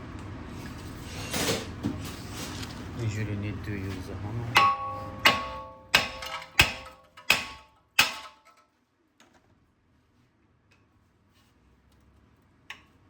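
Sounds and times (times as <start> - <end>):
hammer striking brake disc: 4.5 - 8.5.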